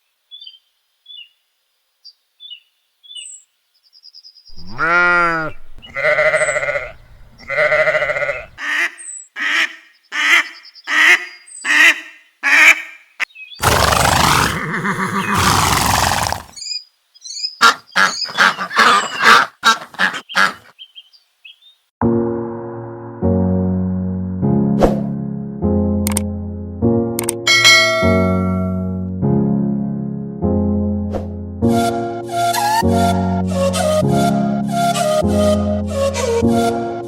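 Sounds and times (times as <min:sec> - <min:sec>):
farm animal calls: 0:04.5 - 0:11.2, 0:13.6 - 0:16.6, 0:17.6 - 0:21.1.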